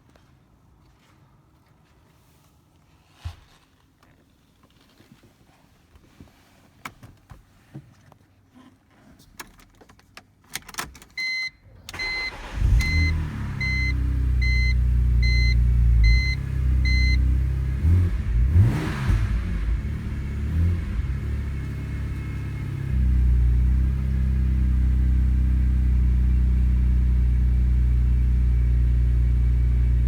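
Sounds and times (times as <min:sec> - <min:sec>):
car engine starting and idling: 0:10.8 - 0:30.0.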